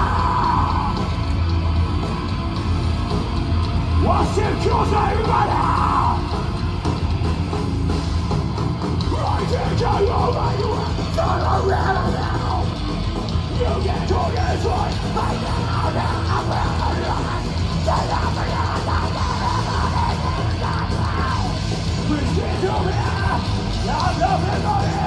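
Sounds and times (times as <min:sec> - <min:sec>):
shouted vocal: 0:00.0 - 0:01.2, 0:04.0 - 0:06.4, 0:09.1 - 0:12.8, 0:13.5 - 0:25.0
heavy rock band playing: 0:00.0 - 0:25.0.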